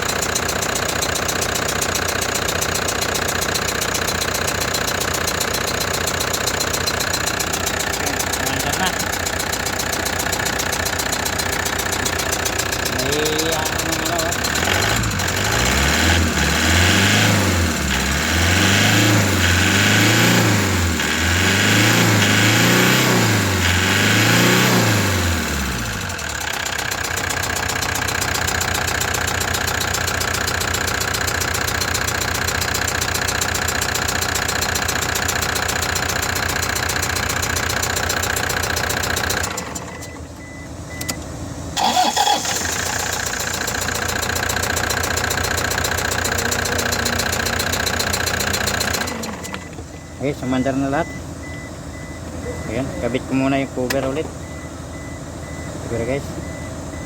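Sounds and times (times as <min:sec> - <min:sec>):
engine revving and idling: 0:00.0 - 0:57.0.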